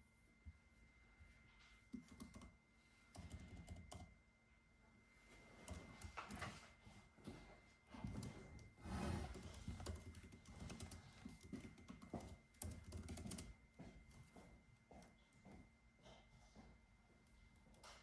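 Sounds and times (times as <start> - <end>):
computer keyboard typing: 1.9 - 4.2, 5.6 - 6.6, 8.0 - 14.3.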